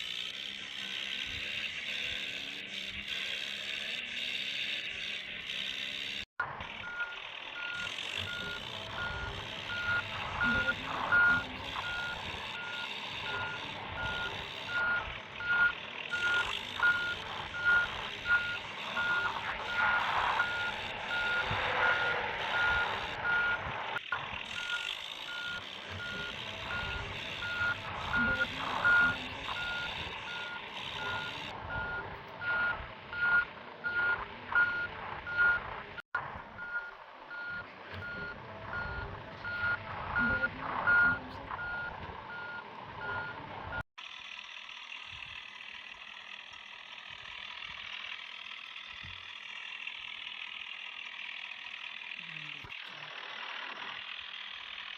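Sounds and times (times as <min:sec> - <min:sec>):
vehicle reversing alarm beeping: 0:06.7 - 0:35.6, 0:36.6 - 0:43.9.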